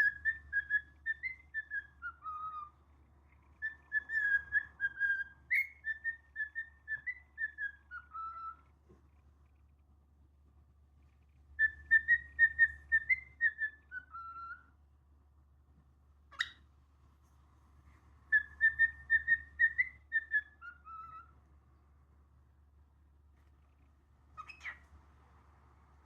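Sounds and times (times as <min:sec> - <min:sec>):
cockatiel whistling a tune: 0:00.0 - 0:02.8, 0:03.6 - 0:08.7, 0:11.6 - 0:14.7, 0:16.3 - 0:16.6, 0:18.3 - 0:21.4, 0:24.4 - 0:24.9.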